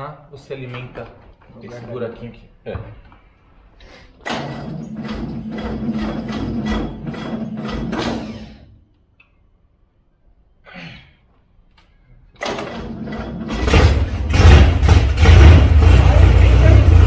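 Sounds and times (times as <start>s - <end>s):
starter motor cranking: 4.3s - 8.8s, 12.4s - 16.0s
engine running and revving: 13.0s - 17.0s.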